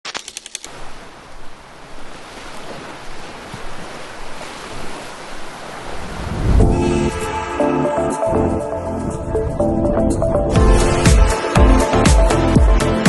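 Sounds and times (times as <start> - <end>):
sea waves washing onto beach: 0.3 - 7.6
music: 6.6 - 13.0.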